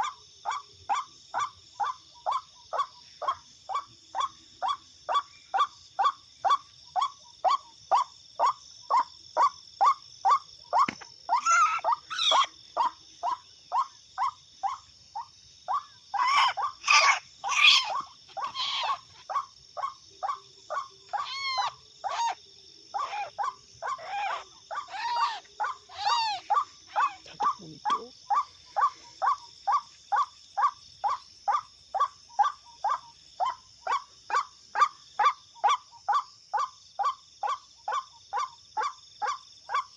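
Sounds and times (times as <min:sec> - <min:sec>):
waterhen calling: 0:10.8 - 0:12.9, 0:20.3 - 0:22.4, 0:23.0 - 0:29.0.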